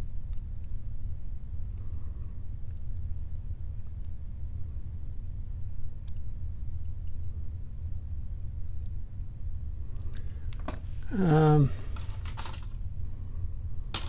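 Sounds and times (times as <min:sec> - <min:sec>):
metallic lock pick clicks: 0:06.0 - 0:07.3.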